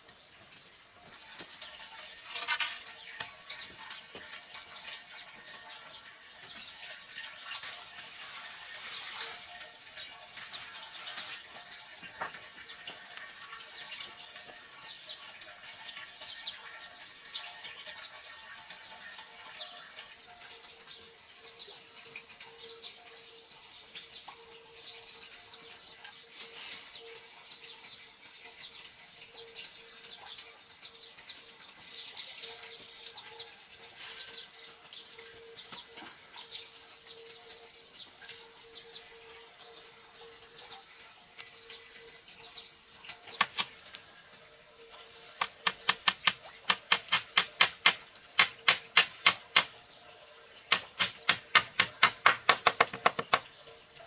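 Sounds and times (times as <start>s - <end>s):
high insect drone: 0.0s - 54.0s
birds chirping: 40.1s - 53.6s
rapid sharp knocks: 45.4s - 49.8s, 50.7s - 53.5s.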